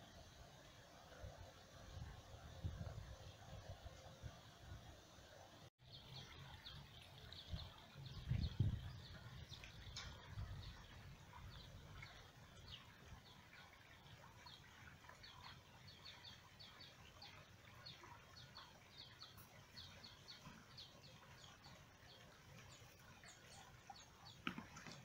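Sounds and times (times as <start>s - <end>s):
birds chirping: 5.8s - 25.0s.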